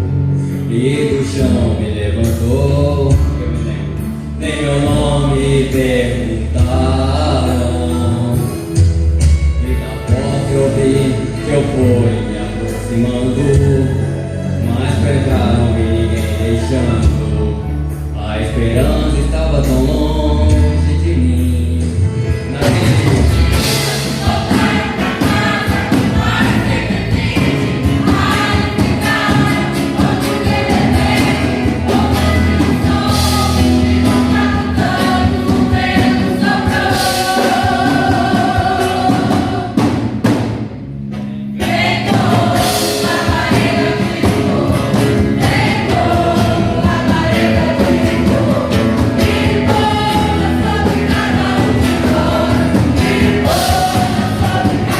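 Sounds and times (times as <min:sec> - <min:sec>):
instrumental accompaniment: 0:00.0 - 0:54.9
choir singing: 0:22.5 - 0:40.4, 0:41.6 - 0:54.9.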